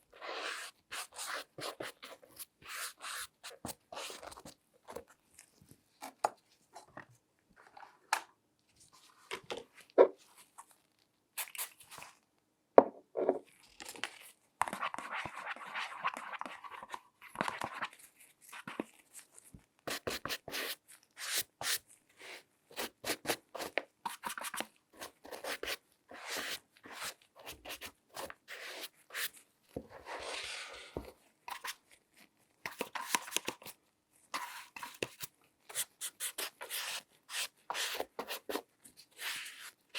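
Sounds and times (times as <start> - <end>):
scratchy rubbing and scraping: 23.0 - 31.8, 34.4 - 39.9.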